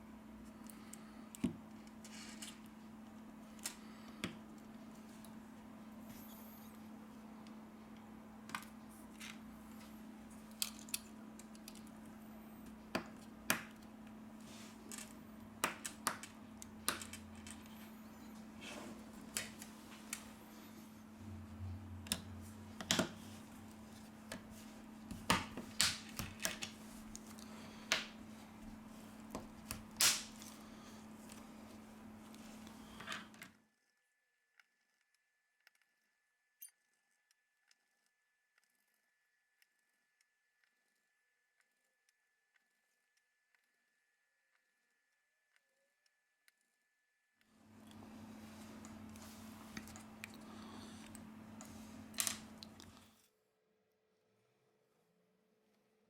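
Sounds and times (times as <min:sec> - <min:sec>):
steady low hum: 0:00.0 - 0:33.4, 0:47.6 - 0:53.1.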